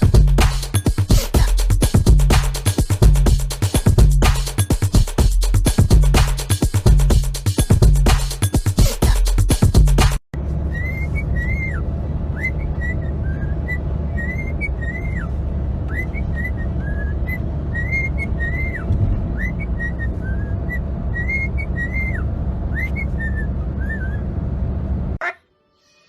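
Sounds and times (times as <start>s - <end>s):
steady low rumble: 10.4s - 25.2s
parrot whistling: 10.7s - 24.3s.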